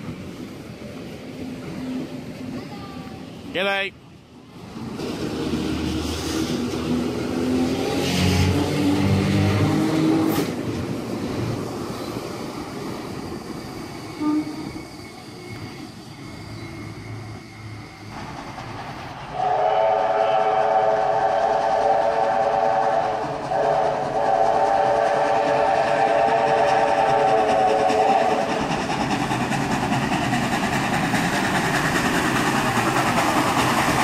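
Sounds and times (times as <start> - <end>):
train rumbling: 0.0 - 34.0
train horn: 14.2 - 14.8, 19.3 - 28.5.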